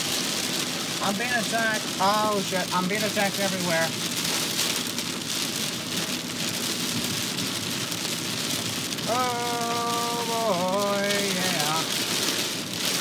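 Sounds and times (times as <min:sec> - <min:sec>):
heavy rain on a car: 0:00.0 - 0:13.0
man saying oh: 0:09.0 - 0:11.9.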